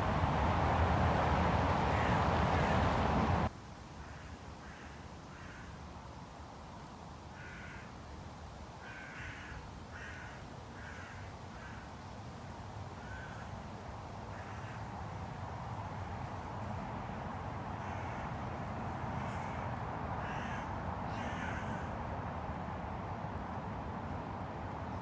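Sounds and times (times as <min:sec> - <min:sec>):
low city rumble: 0:00.0 - 0:04.1, 0:08.9 - 0:25.0
crow cawing: 0:01.9 - 0:02.8, 0:04.0 - 0:05.7, 0:07.4 - 0:07.9, 0:08.8 - 0:11.9, 0:13.0 - 0:13.5, 0:14.3 - 0:14.9, 0:17.7 - 0:22.0.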